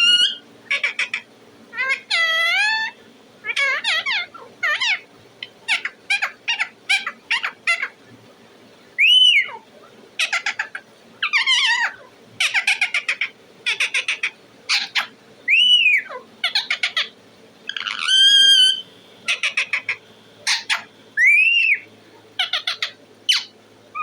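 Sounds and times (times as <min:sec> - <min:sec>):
parrot whistles: 0:00.0 - 0:01.2, 0:01.8 - 0:05.0, 0:09.0 - 0:09.6, 0:10.2 - 0:17.1, 0:17.7 - 0:24.0
parrot chirping and chattering: 0:00.0 - 0:08.0, 0:09.0 - 0:24.0.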